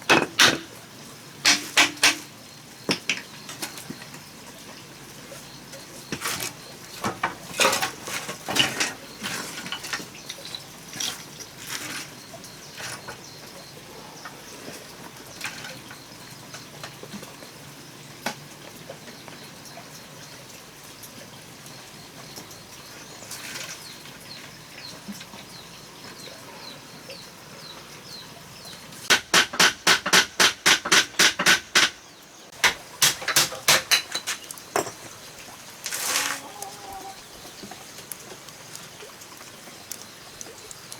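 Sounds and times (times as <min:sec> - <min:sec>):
loud sharp knocks: 0:01.4 - 0:02.3, 0:29.1 - 0:32.0, 0:32.6 - 0:34.9.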